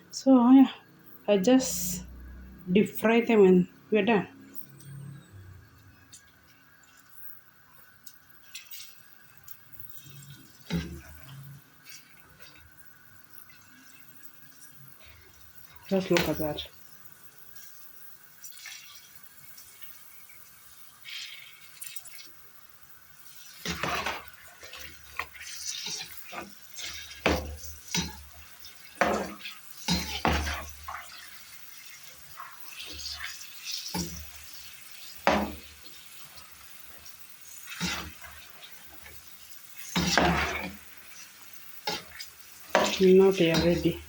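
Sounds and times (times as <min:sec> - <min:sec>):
hot oil frying: 0:00.0 - 0:44.0
utensil scraping a pan: 0:23.3 - 0:44.0.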